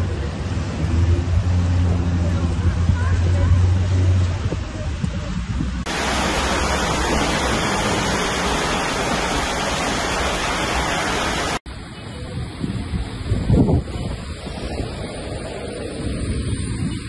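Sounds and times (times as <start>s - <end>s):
heavy rain pouring: 5.8s - 11.7s.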